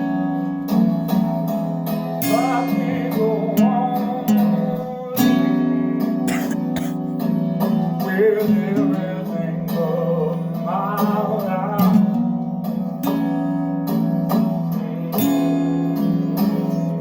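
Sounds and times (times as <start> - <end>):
acoustic guitar strumming: 0.0 - 17.0
person singing: 2.2 - 7.0, 7.9 - 12.4, 14.3 - 17.0.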